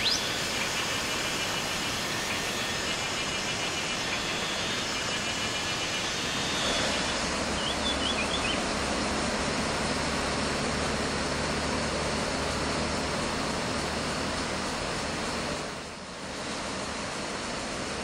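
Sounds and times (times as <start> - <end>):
bird call: 2.2 - 8.6.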